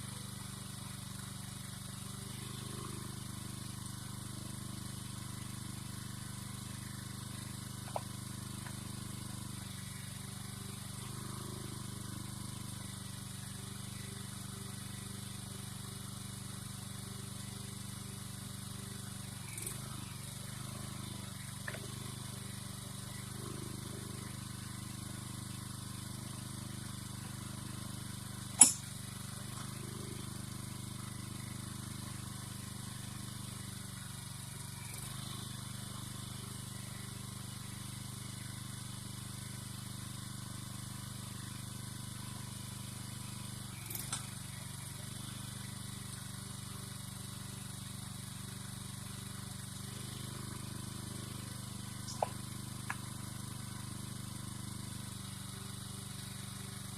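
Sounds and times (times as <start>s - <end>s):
sharp metallic knock: 28.6s - 28.9s.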